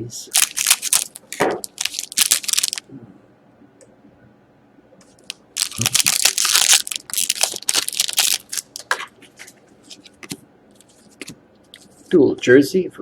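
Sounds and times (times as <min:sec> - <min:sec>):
cards rustling and clicking: 0:00.3 - 0:02.8, 0:05.2 - 0:12.0
wrapper crinkling and tearing: 0:00.3 - 0:02.8, 0:05.2 - 0:09.1.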